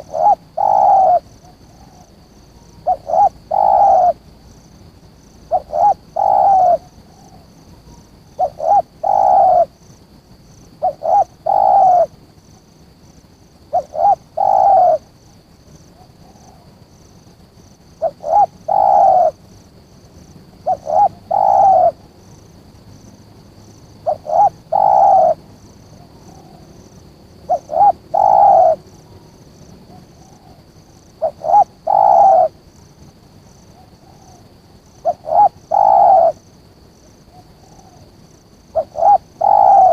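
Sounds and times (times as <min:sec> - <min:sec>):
dove cooing: 0:00.0 - 0:04.2, 0:05.5 - 0:09.8, 0:10.8 - 0:12.2, 0:13.7 - 0:15.1, 0:18.0 - 0:19.4, 0:20.6 - 0:22.0, 0:24.0 - 0:25.4, 0:27.5 - 0:32.6, 0:33.7 - 0:36.5, 0:37.2 - 0:38.1, 0:38.7 - 0:39.9.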